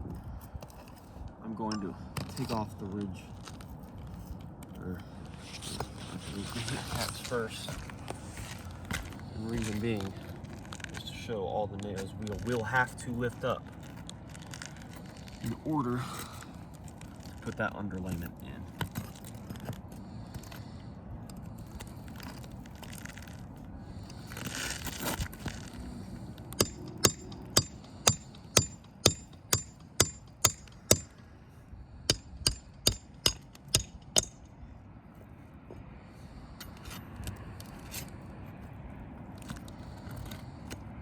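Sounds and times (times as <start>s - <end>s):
hammer ringing taps: 26.6s - 31.1s.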